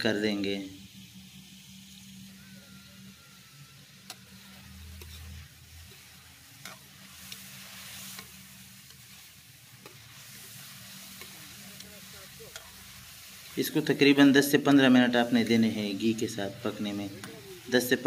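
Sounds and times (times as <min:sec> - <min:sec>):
chicken sizzling in hot fat: 0:00.0 - 0:18.0
metal spatula scraping pan: 0:02.7 - 0:09.1.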